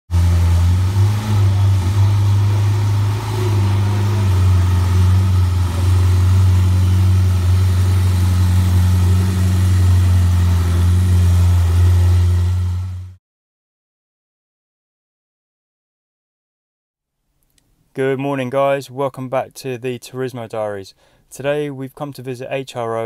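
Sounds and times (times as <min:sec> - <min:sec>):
car engine idling: 0:00.1 - 0:13.2.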